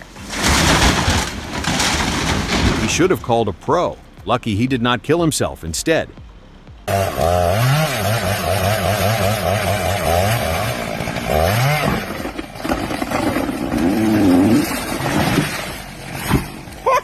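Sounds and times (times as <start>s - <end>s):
engine revving unevenly: 6.9s - 16.8s.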